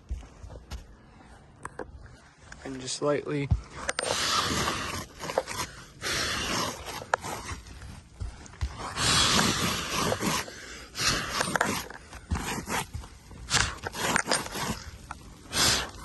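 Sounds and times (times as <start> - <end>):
scraping on roof shingles: 4.0 - 16.0.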